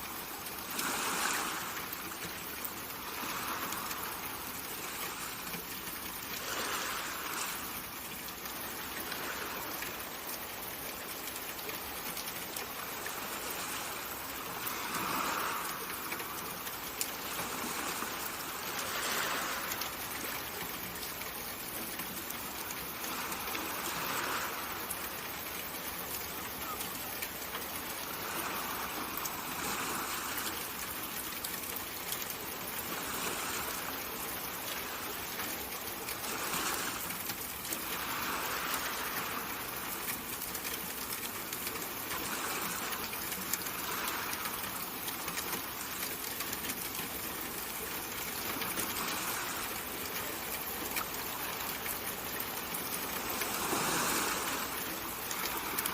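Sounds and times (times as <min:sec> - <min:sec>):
rushing water hiss: 0:00.0 - 0:55.9.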